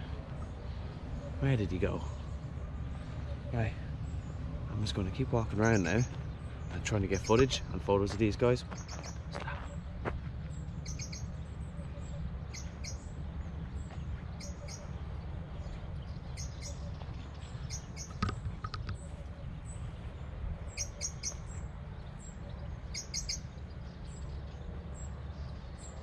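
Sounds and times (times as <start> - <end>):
steady low rumble: 0.0 - 26.0
small bird chirping: 8.7 - 9.3, 10.8 - 13.2, 13.8 - 15.0, 15.6 - 26.0.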